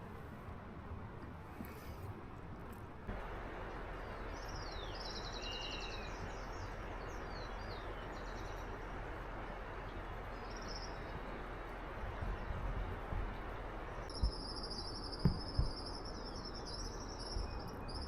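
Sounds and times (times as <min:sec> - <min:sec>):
steady background hiss: 0:00.0 - 0:18.0
birds chirping and trilling: 0:03.9 - 0:09.0, 0:09.7 - 0:11.3, 0:13.9 - 0:18.0.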